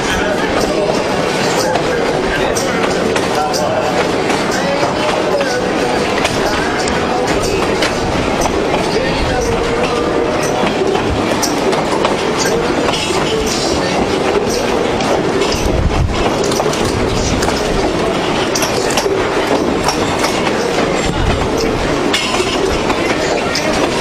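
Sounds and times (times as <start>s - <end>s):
train car rattling and knocking: 0.0s - 24.0s
train rumble: 0.0s - 24.0s
train wheels clacking over rail joints: 0.0s - 24.0s.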